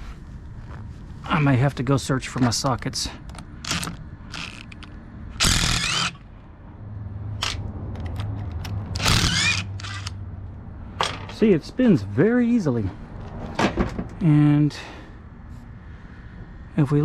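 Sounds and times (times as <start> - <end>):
ratchet wrench clicks: 3.7 - 6.2, 7.4 - 10.2.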